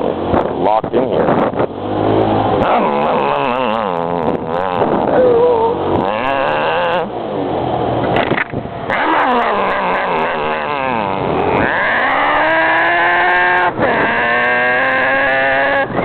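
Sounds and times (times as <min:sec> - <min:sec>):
man imitating motorbike engine: 0:02.6 - 0:07.2, 0:08.9 - 0:16.0.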